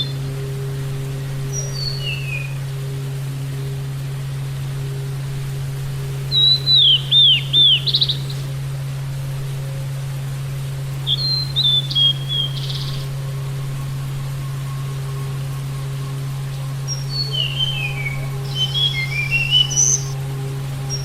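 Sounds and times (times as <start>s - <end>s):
low electrical hum: 0.0s - 21.0s
songbird whistled phrases: 1.5s - 2.6s, 6.2s - 8.5s, 11.0s - 13.1s, 16.9s - 20.2s.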